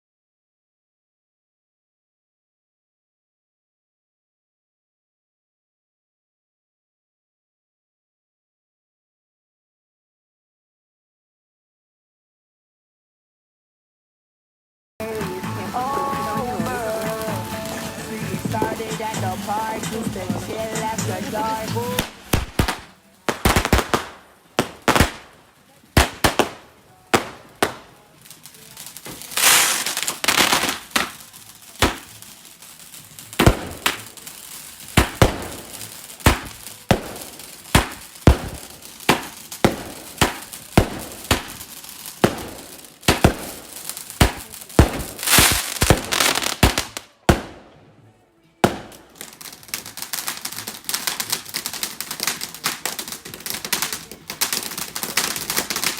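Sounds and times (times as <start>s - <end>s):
dense rapid crackle: 15.0s - 47.0s
hissing crackling firework bursts: 15.0s - 47.7s, 48.6s - 55.9s
firework bangs: 15.0s - 47.9s, 48.6s - 55.9s.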